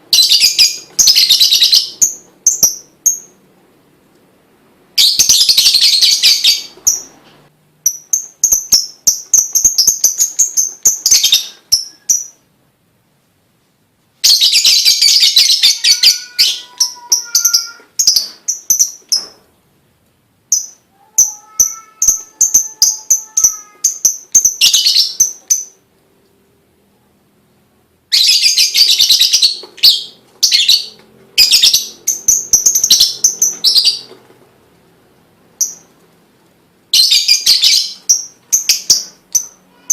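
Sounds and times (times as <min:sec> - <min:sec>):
lovebird chattering song: 0:00.1 - 0:03.4, 0:07.8 - 0:12.5, 0:14.2 - 0:19.4, 0:20.5 - 0:25.8, 0:28.1 - 0:34.2, 0:35.6 - 0:35.9, 0:37.0 - 0:39.9.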